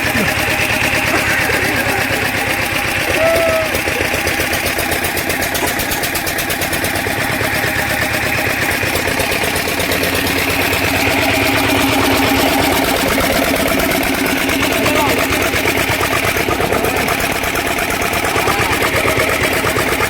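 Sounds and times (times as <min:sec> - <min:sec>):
stationary engine running: 0:00.0 - 0:20.0.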